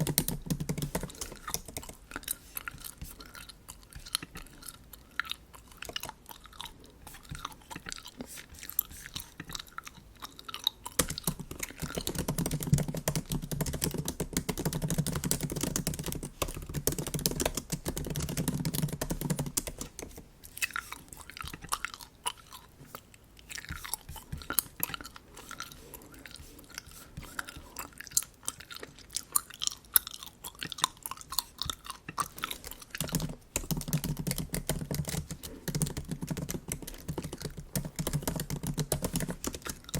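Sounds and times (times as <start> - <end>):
gum chewing clicks: 0.0 - 39.9.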